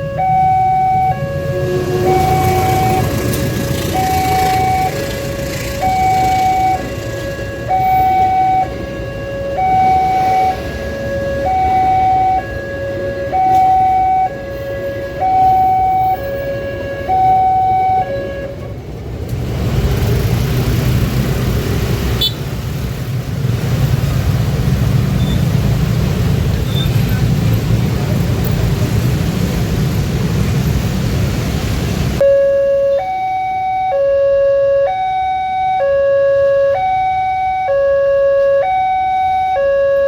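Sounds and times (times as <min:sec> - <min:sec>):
two-tone level crossing alarm: 0:00.0 - 0:18.6, 0:32.2 - 0:40.0
vehicle rumble: 0:00.0 - 0:40.0.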